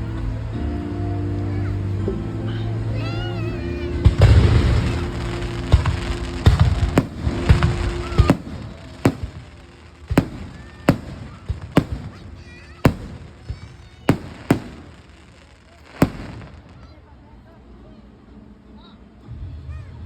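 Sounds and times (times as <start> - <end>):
fireworks banging: 3.8 - 17.0.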